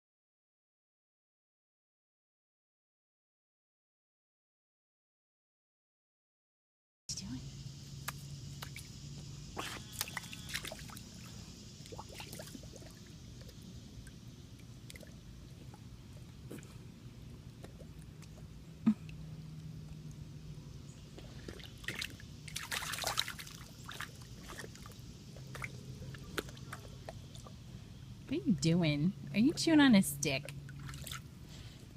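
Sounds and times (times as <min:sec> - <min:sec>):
puppy splashing in puddle water: 0:08.0 - 0:16.7, 0:17.3 - 0:27.8, 0:30.4 - 0:31.4
water dripping: 0:21.1 - 0:27.6.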